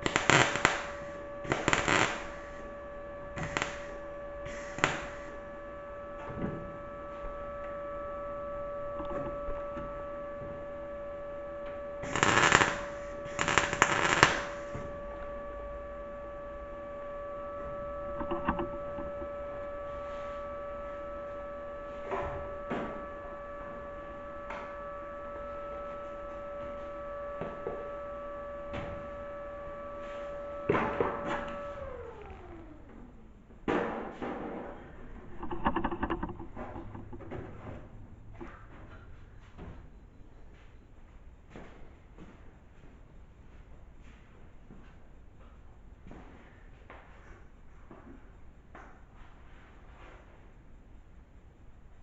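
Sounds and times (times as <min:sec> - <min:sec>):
loud crackling bursts: 0:00.0 - 0:06.4, 0:07.0 - 0:32.3
machine hum: 0:00.0 - 0:41.6.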